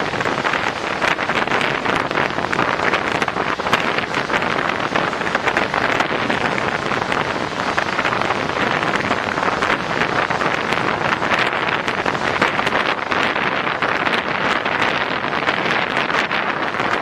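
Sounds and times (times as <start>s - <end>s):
boat moving through water: 0.0s - 17.0s
wind buffeting microphone: 0.0s - 17.0s.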